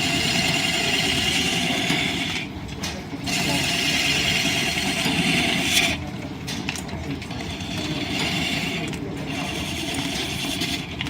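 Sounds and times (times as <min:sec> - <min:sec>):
wood lathe shafting rumble: 0:00.0 - 0:02.4.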